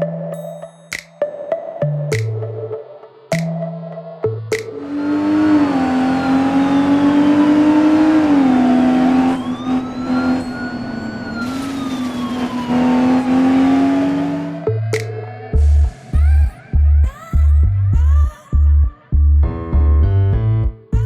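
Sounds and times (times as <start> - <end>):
racing car engine: 4.7 - 15.4.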